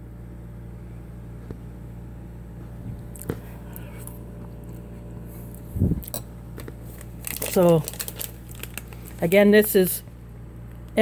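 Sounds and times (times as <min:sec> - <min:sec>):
steady low hum: 0:00.0 - 0:11.0
person chewing noodles: 0:03.0 - 0:06.1.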